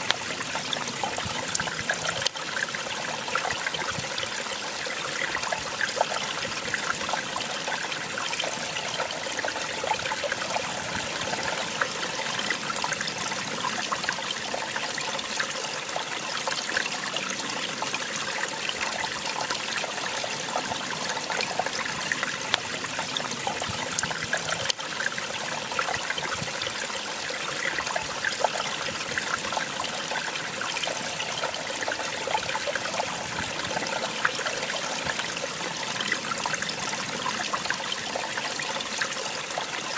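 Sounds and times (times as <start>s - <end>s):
water splashing and trickling: 0.0s - 39.9s.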